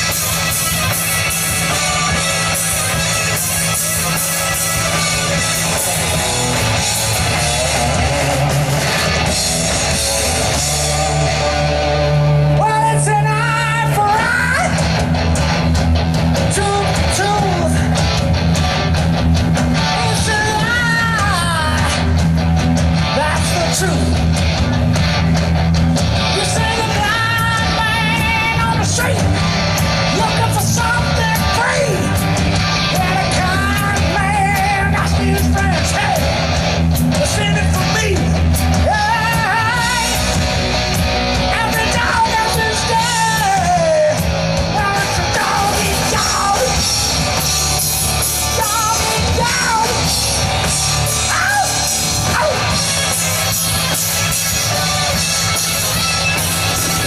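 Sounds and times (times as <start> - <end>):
bass line: 0.0 - 57.0
electric guitar: 0.0 - 57.0
live rock band playing: 0.0 - 57.0
person singing: 12.5 - 14.9, 16.4 - 18.0, 19.8 - 22.2, 26.2 - 32.2, 32.8 - 36.3, 37.2 - 40.5, 41.4 - 47.4, 48.1 - 57.0.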